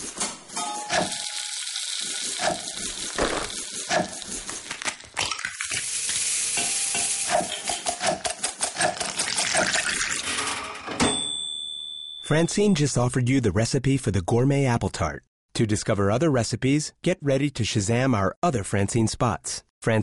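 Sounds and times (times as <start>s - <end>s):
utensils knocking bowls and pans: 6.5s - 9.6s.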